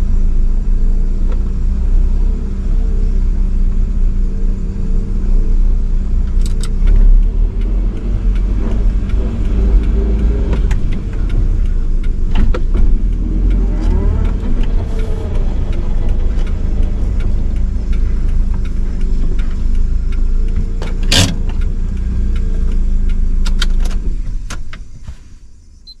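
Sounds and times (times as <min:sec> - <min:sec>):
car engine running: 0:00.0 - 0:25.9
low road rumble: 0:00.0 - 0:26.0
sharp clicks: 0:06.2 - 0:24.9.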